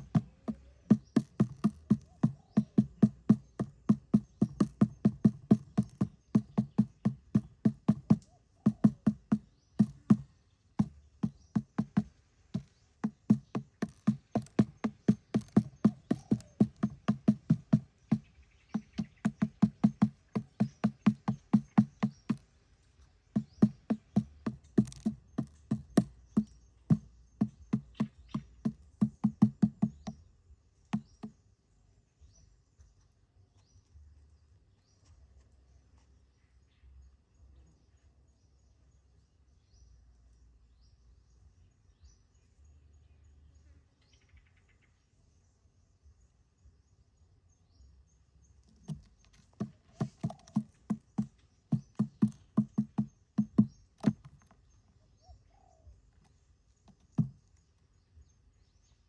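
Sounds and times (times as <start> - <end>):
dull knocking on wood: 0.0 - 22.5, 23.3 - 30.3, 30.9 - 31.3, 48.7 - 54.7, 56.8 - 57.6.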